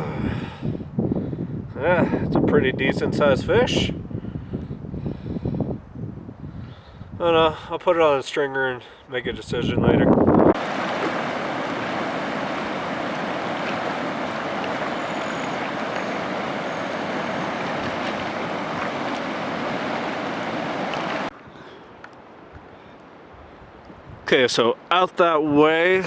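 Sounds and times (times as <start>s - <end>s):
wind rushing: 9.4s - 21.3s
choppy lake water around canoe: 10.6s - 23.8s.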